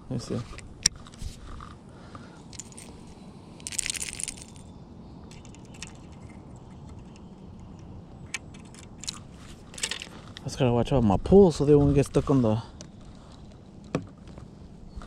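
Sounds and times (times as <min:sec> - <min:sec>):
low steady background noise: 0:00.0 - 0:15.0
fishing tackle clicking and rattling: 0:02.4 - 0:10.4.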